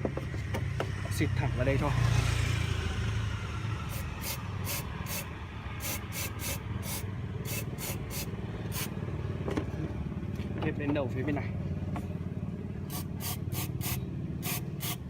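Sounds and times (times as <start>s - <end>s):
aerosol can spraying: 3.9s - 8.9s, 12.9s - 15.0s.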